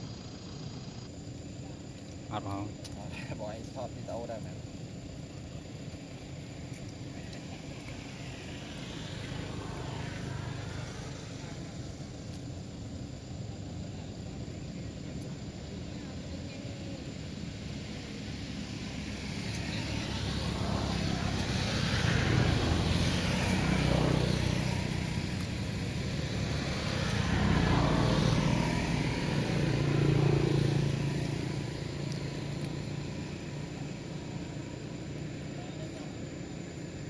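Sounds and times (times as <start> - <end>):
road background noise: 0.0 - 37.0
vehicles driving past: 3.4 - 37.0.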